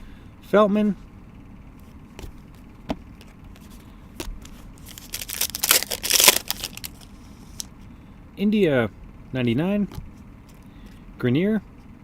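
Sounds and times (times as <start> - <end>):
packaging rustling: 3.2 - 7.7.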